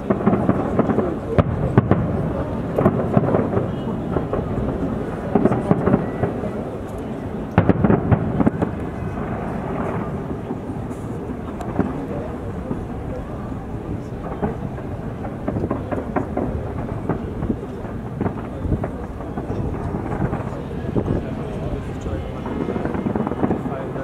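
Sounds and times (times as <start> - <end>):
fireworks exploding: 0.0 - 24.0
sharp bangs and crackles: 0.0 - 24.0.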